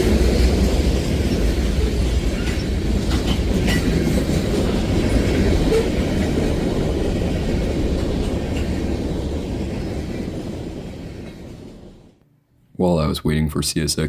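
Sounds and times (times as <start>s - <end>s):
freight train rolling past: 0.0s - 12.2s.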